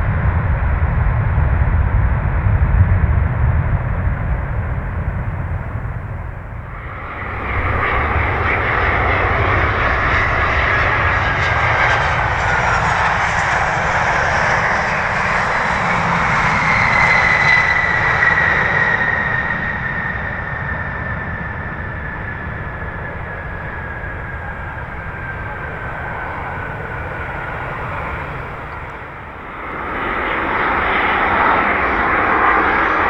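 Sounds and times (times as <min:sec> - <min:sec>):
jet airliner landing: 0:00.0 - 0:33.0.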